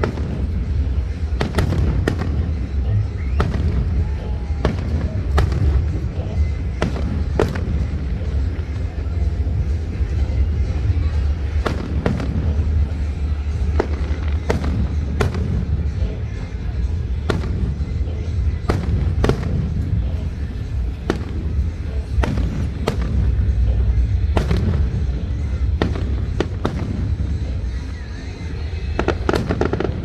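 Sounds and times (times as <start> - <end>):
fireworks bangs: 0.0 - 30.0
low rumble: 0.0 - 30.0.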